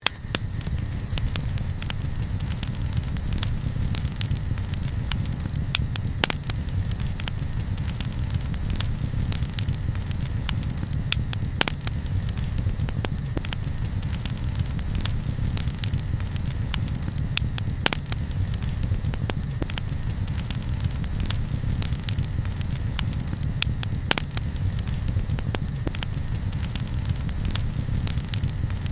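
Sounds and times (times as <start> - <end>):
campfire crackling and popping: 0.0 - 28.9
low rumble: 0.2 - 28.9.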